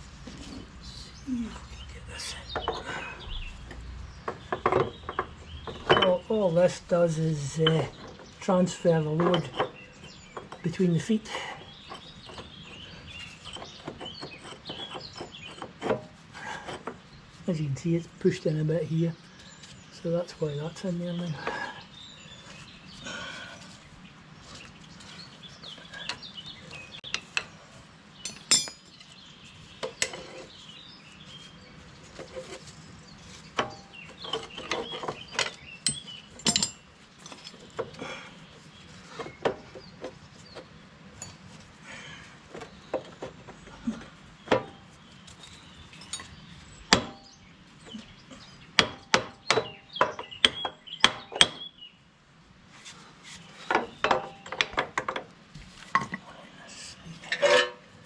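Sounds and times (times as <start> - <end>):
metal clinks and knocks of tools: 28.2 - 29.2, 33.6 - 37.6, 44.6 - 46.4.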